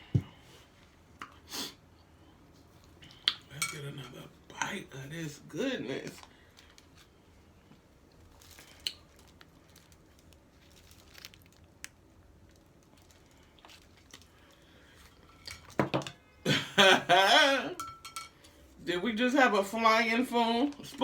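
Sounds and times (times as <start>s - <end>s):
soft chewing: 6.1s - 15.8s.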